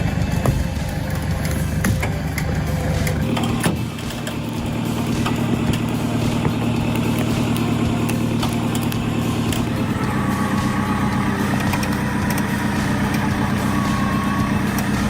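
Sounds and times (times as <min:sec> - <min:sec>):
pickup engine running: 0:00.0 - 0:15.0
sharp clicks and knocks: 0:00.2 - 0:15.0.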